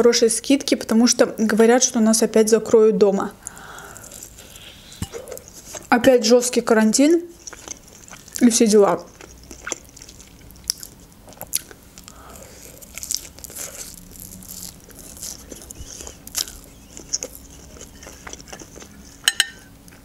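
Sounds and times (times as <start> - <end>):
person chewing: 3.4 - 5.9, 7.2 - 20.0.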